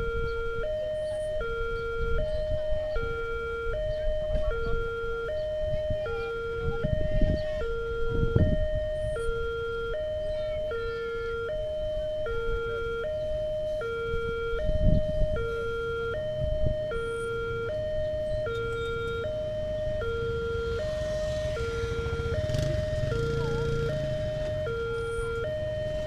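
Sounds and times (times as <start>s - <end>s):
level crossing two-tone siren: 0.0s - 26.0s
passing motor vehicle: 14.8s - 26.0s.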